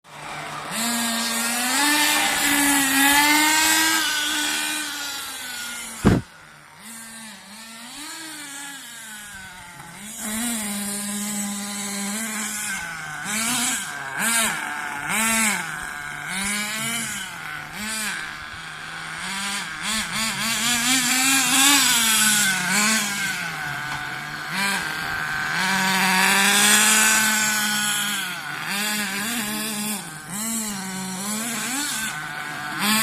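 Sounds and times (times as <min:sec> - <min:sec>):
small engine revving: 0:00.0 - 0:33.0.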